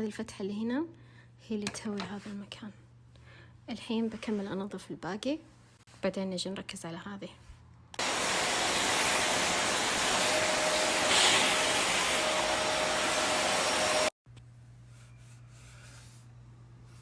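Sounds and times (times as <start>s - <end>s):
handheld vacuum cleaner running: 8.0s - 14.1s.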